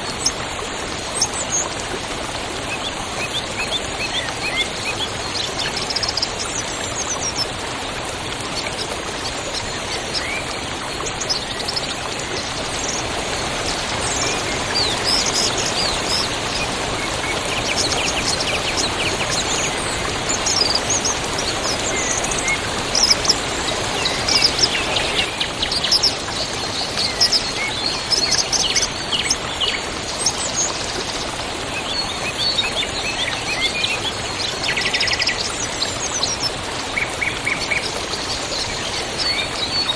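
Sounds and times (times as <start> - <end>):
river water rushing: 23.4 - 39.9
small birds chirping and trilling: 23.5 - 39.9.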